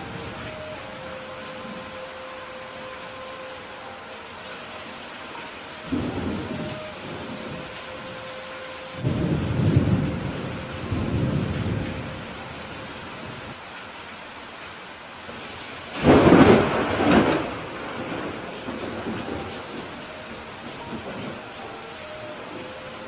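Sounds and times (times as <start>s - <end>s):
steady rain: 0.0s - 23.0s
low thunder rumbling: 5.9s - 8.1s, 8.9s - 12.5s, 16.0s - 21.5s
sharp thunderclap: 16.0s - 19.3s.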